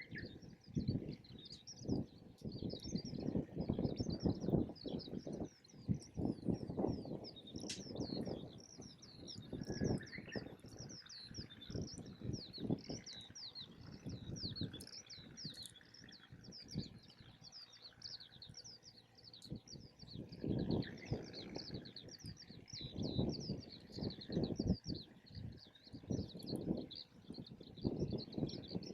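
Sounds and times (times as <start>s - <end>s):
small birds chirping: 0.0s - 28.9s
wind rumbling on microphone: 0.0s - 28.9s
campfire crackling: 7.5s - 7.9s.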